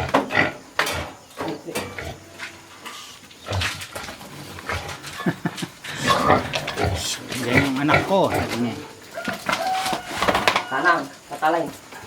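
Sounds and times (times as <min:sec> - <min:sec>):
animals grunting and snuffling: 0:00.0 - 0:12.0.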